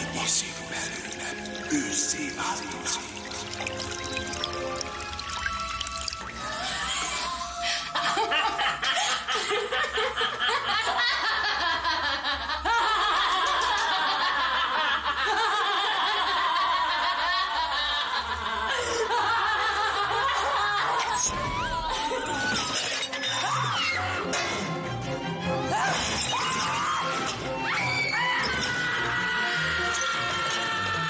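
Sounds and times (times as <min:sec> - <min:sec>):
background music: 0:00.0 - 0:31.0
women laughing: 0:06.6 - 0:22.7.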